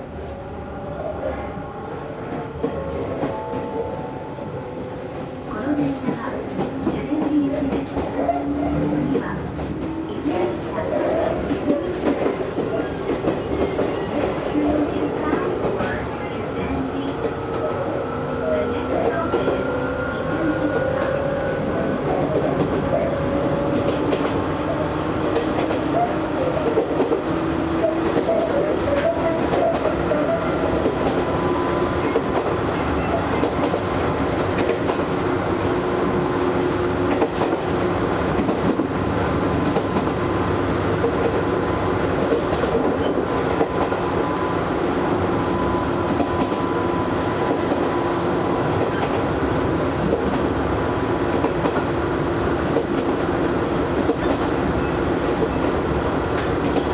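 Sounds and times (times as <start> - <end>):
train wheels rumbling on rail: 0.0 - 56.9
rail joint clicks: 21.9 - 44.7, 52.6 - 56.9.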